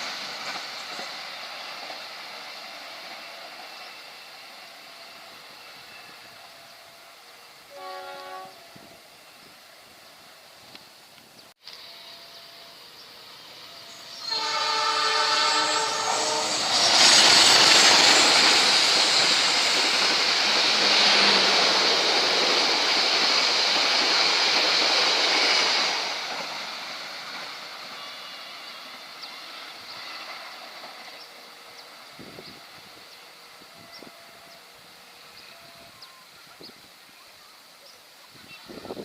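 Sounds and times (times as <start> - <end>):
passenger train passing: 0.0 - 39.0
train horn blast: 7.6 - 9.0, 13.8 - 17.2.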